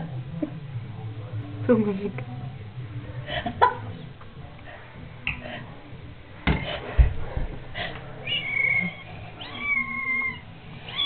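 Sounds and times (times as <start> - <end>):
kitten meowing: 8.2 - 11.0.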